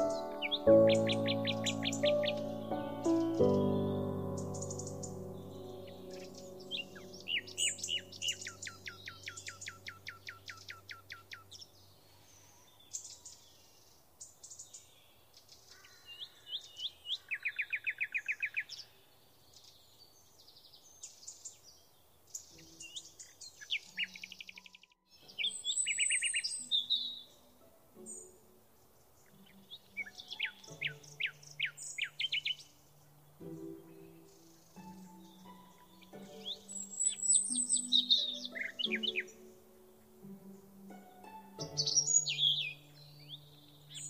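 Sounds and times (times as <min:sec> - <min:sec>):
bird trill: 0:00.0 - 0:13.4, 0:22.6 - 0:28.3, 0:29.1 - 0:44.0
faint music tones: 0:00.0 - 0:14.8, 0:22.3 - 0:44.0
birds singing and calling: 0:00.0 - 0:18.9, 0:19.5 - 0:40.9, 0:41.5 - 0:44.0.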